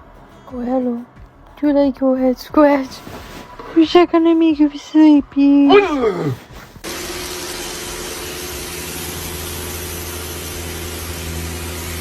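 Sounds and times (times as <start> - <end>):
motor running: 6.8 - 12.0.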